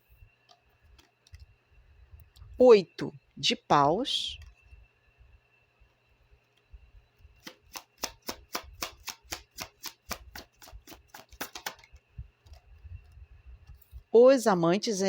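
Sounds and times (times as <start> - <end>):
cards being shuffled by hand: 7.4 - 12.6.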